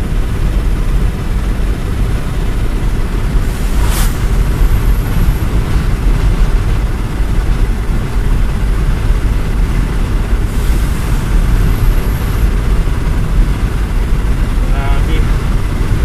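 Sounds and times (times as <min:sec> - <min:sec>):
strong wind buffeting microphone: 0:00.0 - 0:16.0
hissing wind gust: 0:01.8 - 0:16.0.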